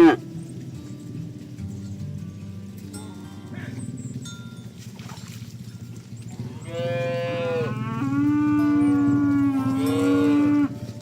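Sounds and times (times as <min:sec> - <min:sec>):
cow mooing: 0:00.0 - 0:00.2, 0:06.3 - 0:11.0.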